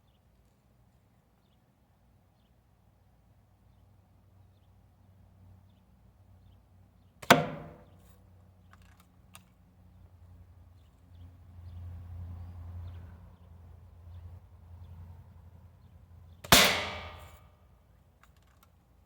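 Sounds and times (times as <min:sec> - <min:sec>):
air rifle shot: 0:07.2 - 0:07.9, 0:16.4 - 0:17.4.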